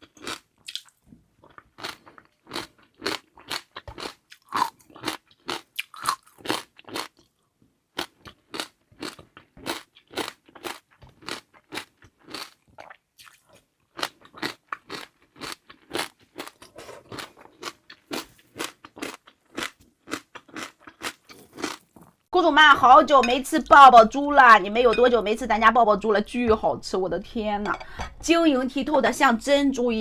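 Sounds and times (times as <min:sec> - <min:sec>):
crunchy chewing: 0:00.0 - 0:07.4, 0:08.0 - 0:22.3.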